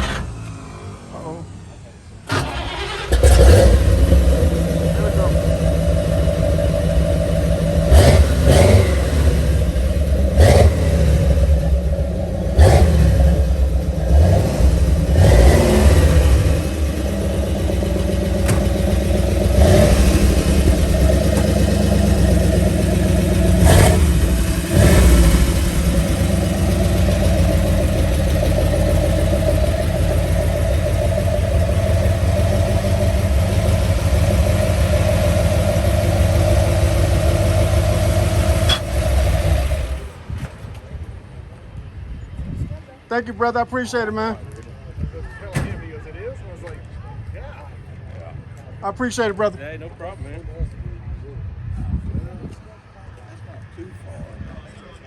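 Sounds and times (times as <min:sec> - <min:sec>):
car engine revving and idling: 0:00.0 - 0:40.2.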